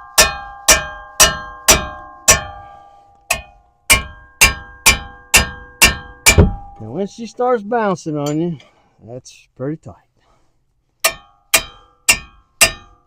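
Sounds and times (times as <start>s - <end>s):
hammer striking metal wrench: 0.0s - 6.8s, 11.0s - 13.0s.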